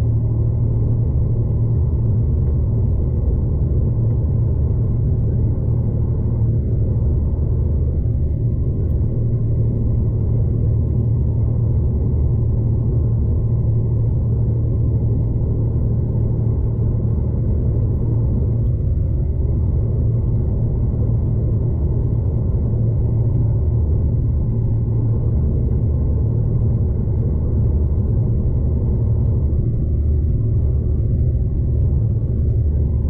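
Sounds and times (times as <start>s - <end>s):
train rumble from inside carriage: 0.0s - 33.0s.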